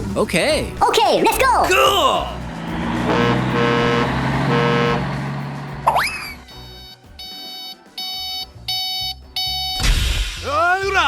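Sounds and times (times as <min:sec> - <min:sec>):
rising electronic whistle: 0:02.7 - 0:08.8
short electronic beeps: 0:05.9 - 0:09.8.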